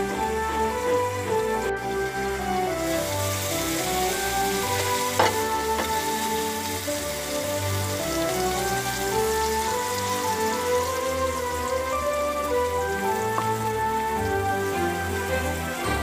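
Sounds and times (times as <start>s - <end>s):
background music with held notes: 0.0s - 16.0s
vegetables sizzling in a pan: 3.0s - 10.7s.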